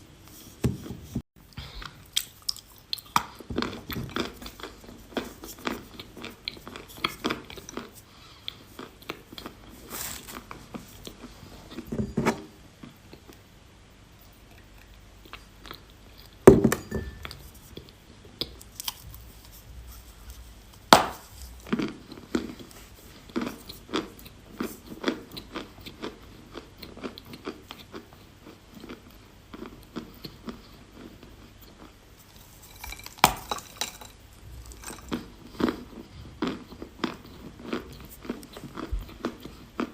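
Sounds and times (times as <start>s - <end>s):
person chewing chalk: 1.8s - 11.3s, 34.6s - 39.9s.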